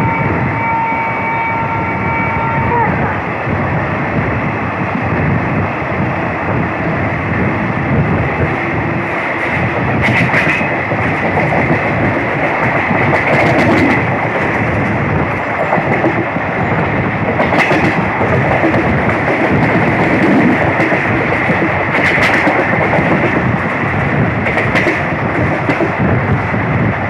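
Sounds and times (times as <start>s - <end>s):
sharp train clanks: 6.5s - 26.9s
train wheels clattering on rails: 7.4s - 26.9s.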